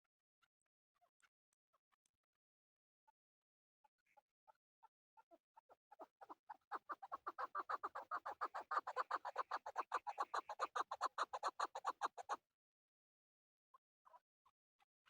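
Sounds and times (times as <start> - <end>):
partridge calling: 6.8 - 12.3.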